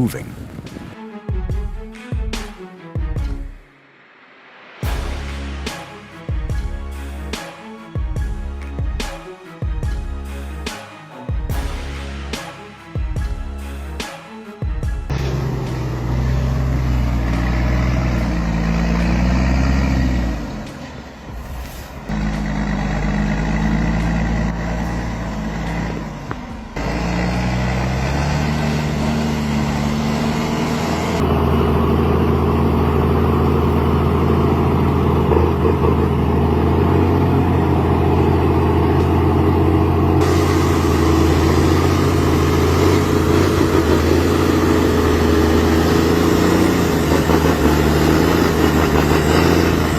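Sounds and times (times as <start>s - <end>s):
heavy truck engines under load: 15.1s - 49.9s.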